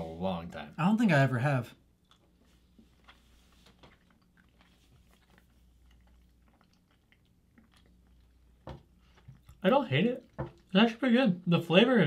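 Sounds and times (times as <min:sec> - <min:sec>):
soft mouth clicks chewing candy: 0:02.0 - 0:09.6.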